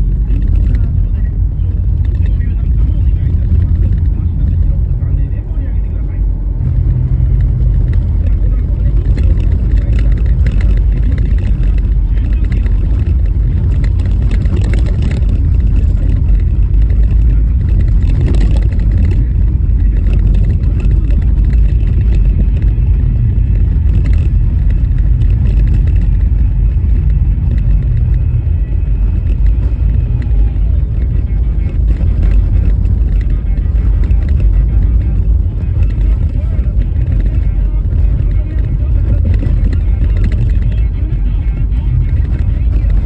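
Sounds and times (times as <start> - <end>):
car tyres rumbling on snowy road: 0.0 - 43.0.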